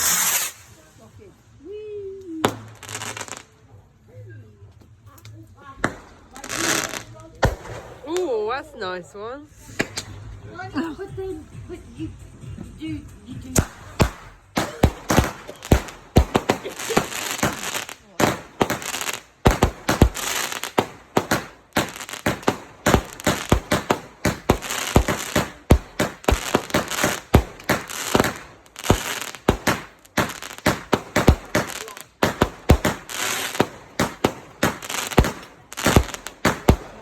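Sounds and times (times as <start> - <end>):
fireworks banging: 0.0 - 0.9, 5.7 - 8.5, 9.6 - 10.3, 13.5 - 37.0
fireworks hissing crackle: 0.0 - 3.8, 5.9 - 8.4, 9.5 - 10.9, 13.5 - 37.0.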